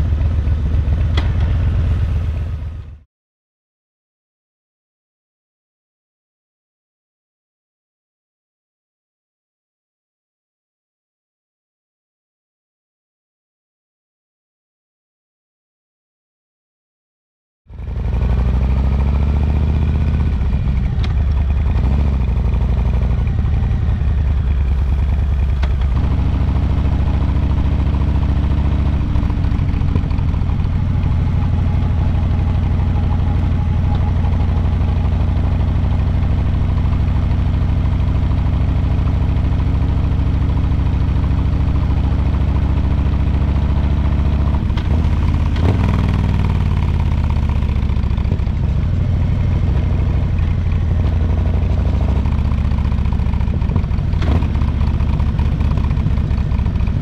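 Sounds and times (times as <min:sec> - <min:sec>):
motorcycle engine and exhaust: 0:00.0 - 0:03.1, 0:17.7 - 0:57.0.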